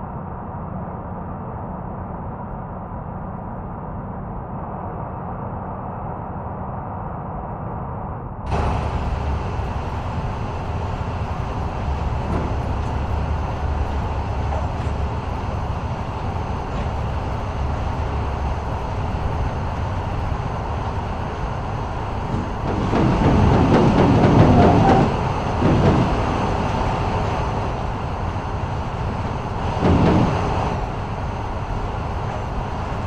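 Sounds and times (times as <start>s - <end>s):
vehicle running with road noise: 8.5s - 33.0s.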